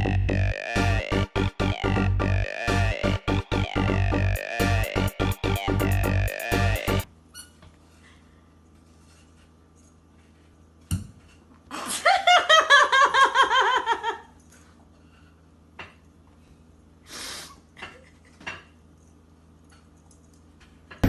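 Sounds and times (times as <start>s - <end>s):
person giggling: 11.7s - 14.4s.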